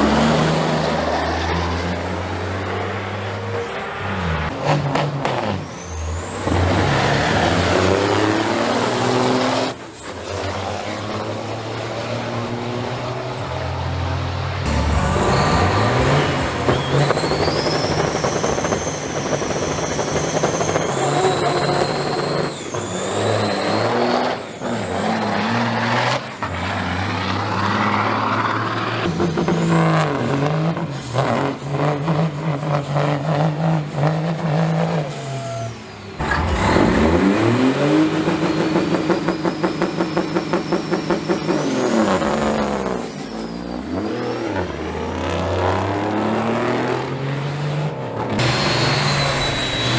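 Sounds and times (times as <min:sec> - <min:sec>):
truck diesel engines accelerating: 0:00.0 - 0:49.9
turbo whistle: 0:14.7 - 0:24.3, 0:35.0 - 0:36.5, 0:38.2 - 0:44.5, 0:48.4 - 0:49.9.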